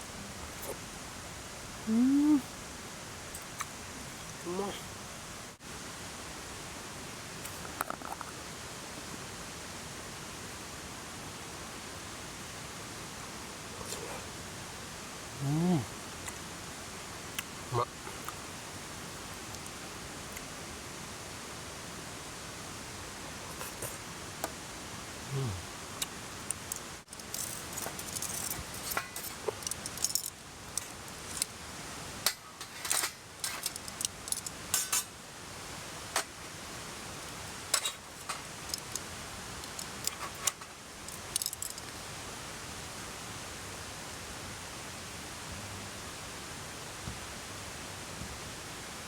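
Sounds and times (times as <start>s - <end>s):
mountain stream rushing: 2.5s - 49.0s
metal utensils clinking on tableware: 27.1s - 31.5s, 32.3s - 35.1s, 37.7s - 39.0s.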